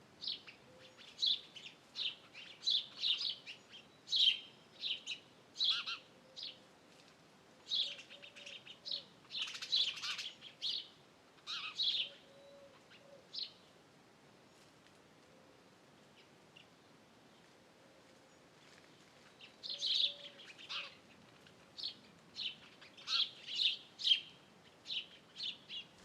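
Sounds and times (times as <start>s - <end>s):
birds chirping and singing: 0.2s - 6.6s, 7.7s - 13.6s, 19.4s - 25.9s.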